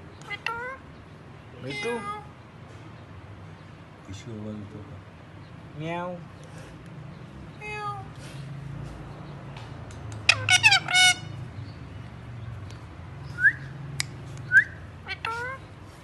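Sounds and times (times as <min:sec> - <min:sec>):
parakeet squawking: 0:00.2 - 0:00.8, 0:01.6 - 0:02.3, 0:10.2 - 0:11.5, 0:15.0 - 0:15.8
parakeet chirps: 0:10.2 - 0:11.8, 0:13.2 - 0:15.7.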